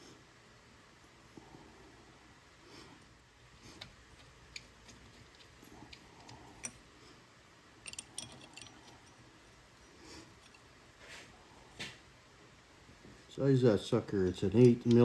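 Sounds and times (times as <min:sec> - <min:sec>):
clicks of engine parts and tools: 0:07.8 - 0:09.2, 0:14.5 - 0:15.0.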